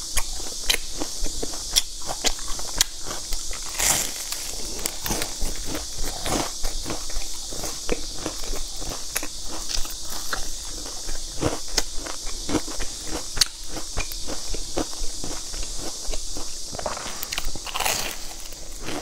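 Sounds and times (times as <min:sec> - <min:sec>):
crunchy chewing: 0:00.0 - 0:19.0
steady hiss: 0:00.0 - 0:19.0.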